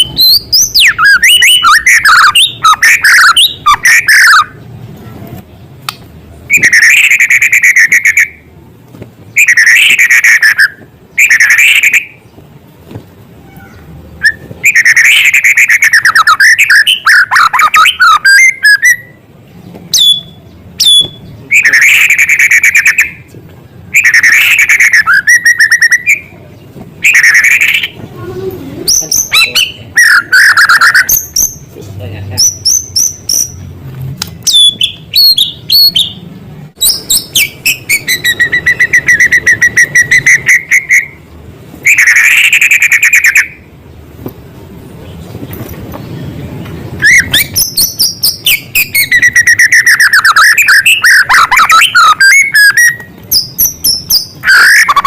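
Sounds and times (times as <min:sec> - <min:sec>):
bird singing whistles and trills: 0:00.0 - 0:04.6, 0:06.5 - 0:08.4, 0:09.3 - 0:12.3, 0:14.2 - 0:19.2, 0:19.9 - 0:23.2, 0:23.9 - 0:26.4, 0:27.0 - 0:28.0, 0:28.9 - 0:31.6, 0:32.4 - 0:33.6, 0:34.5 - 0:36.2, 0:36.8 - 0:41.2, 0:41.8 - 0:43.6, 0:47.0 - 0:55.0.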